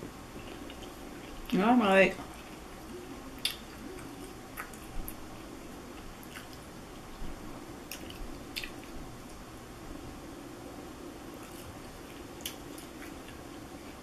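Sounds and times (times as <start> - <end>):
person chewing crunchy food: 0.3 - 1.6, 2.2 - 9.4, 11.3 - 14.0.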